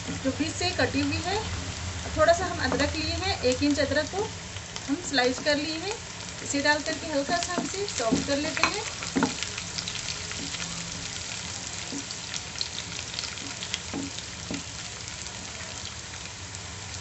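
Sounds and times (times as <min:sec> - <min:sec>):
garlic sizzling in hot oil: 0:00.0 - 0:17.0
wooden spatula scraping and knocking: 0:07.2 - 0:09.5, 0:13.4 - 0:14.7.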